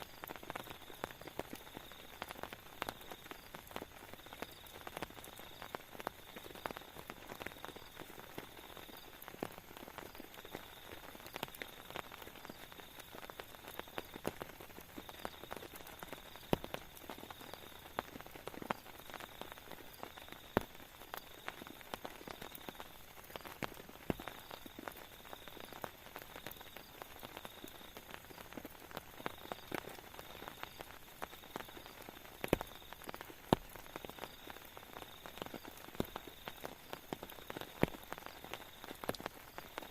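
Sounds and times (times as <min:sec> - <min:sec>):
faint hiss of rain: 0:00.0 - 0:39.9
raindrops tapping: 0:00.0 - 0:39.9.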